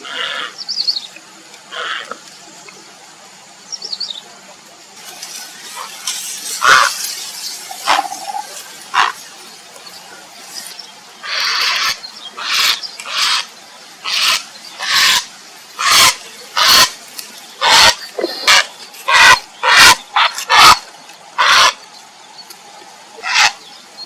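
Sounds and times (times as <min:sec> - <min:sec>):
heron croaking calls: 0:06.6 - 0:06.9, 0:07.8 - 0:09.2, 0:11.2 - 0:16.9, 0:17.6 - 0:20.8, 0:21.4 - 0:21.8, 0:23.2 - 0:23.6.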